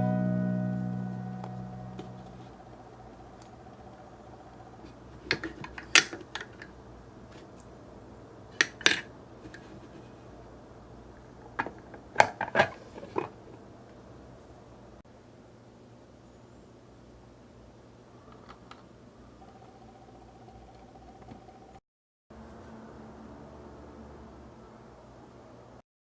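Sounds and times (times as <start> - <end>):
piano chord: 0.0 - 2.6.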